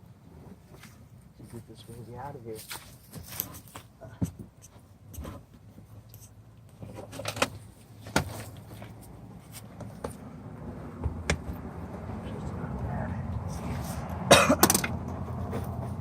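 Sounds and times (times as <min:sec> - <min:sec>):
steady low hum: 0:00.0 - 0:16.0
sharp clicks and knocks: 0:11.0 - 0:11.6.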